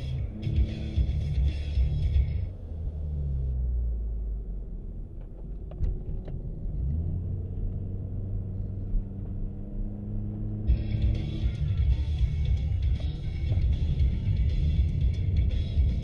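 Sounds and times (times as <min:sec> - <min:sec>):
car engine: 0:00.0 - 0:16.0
road rumble: 0:00.0 - 0:16.0.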